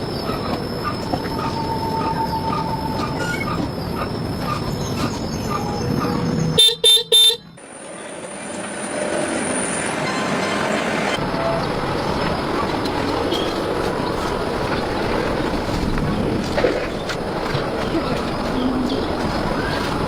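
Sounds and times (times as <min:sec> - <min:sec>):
steady rumbling noise: 0:07.6 - 0:20.0.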